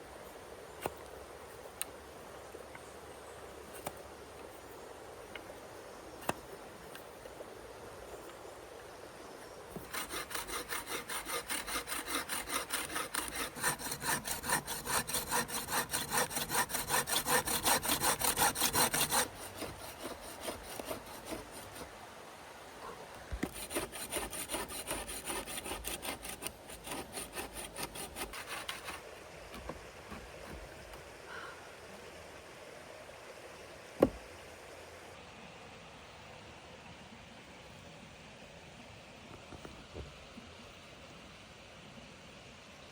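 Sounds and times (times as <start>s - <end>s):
hand saw cutting wood: 9.8s - 21.9s, 23.3s - 30.8s.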